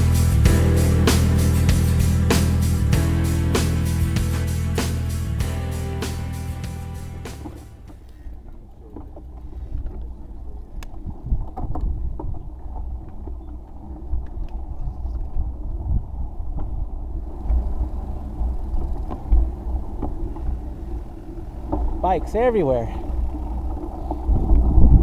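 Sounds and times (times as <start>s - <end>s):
bicycle road noise rumble: 16.8s - 25.0s.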